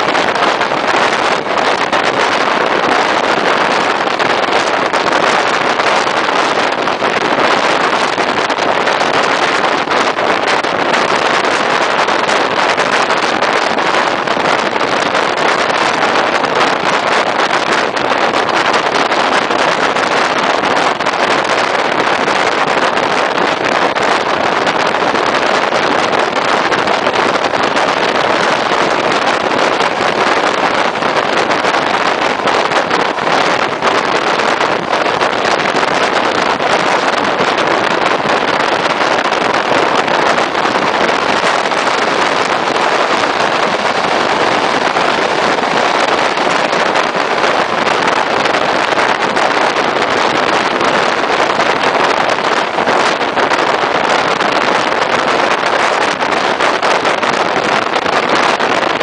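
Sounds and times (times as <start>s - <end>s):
wind rushing: 0.0s - 59.0s
train running noise: 26.8s - 49.0s.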